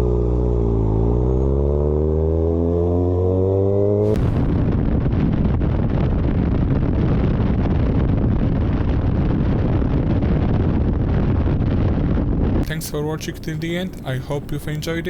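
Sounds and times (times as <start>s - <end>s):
wind buffeting microphone: 4.1s - 15.0s
microphone crackling: 11.1s - 15.0s.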